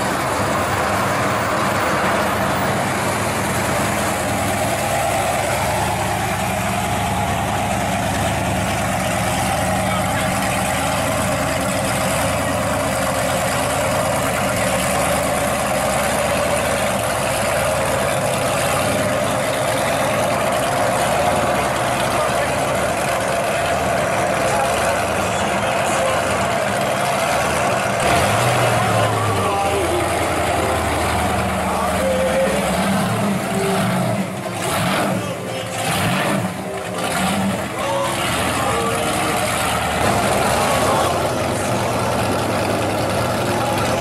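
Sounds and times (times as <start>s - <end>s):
car engine idling: 0.0s - 44.0s
voices chattering: 0.0s - 44.0s.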